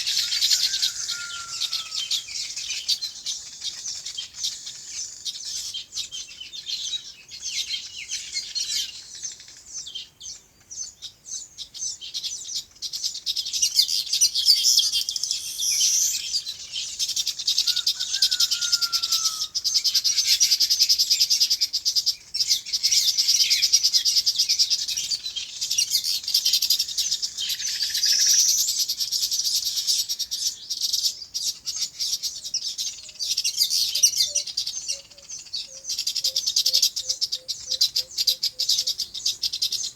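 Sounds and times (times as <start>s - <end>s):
lower falling bird call: 0.0s - 2.6s, 14.4s - 17.0s, 17.6s - 19.8s
small birds chirping: 0.0s - 39.9s.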